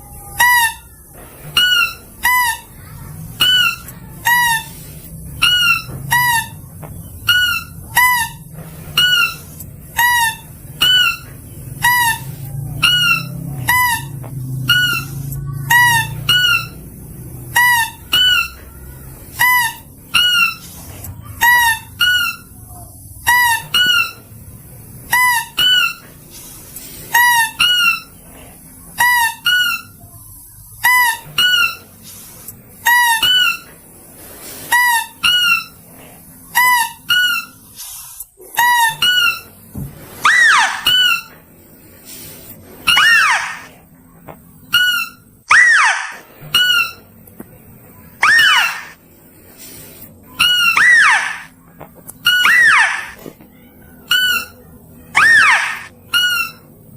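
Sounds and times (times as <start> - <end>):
high squeaky animal calls: 0.0 - 24.3, 25.1 - 26.1, 27.1 - 30.0, 30.8 - 32.0, 32.8 - 33.7, 34.7 - 35.9, 36.5 - 37.8, 38.4 - 39.6, 40.2 - 41.4, 42.8 - 43.8, 44.6 - 47.1, 48.2 - 49.0, 50.3 - 51.6, 52.2 - 53.3, 54.0 - 56.8.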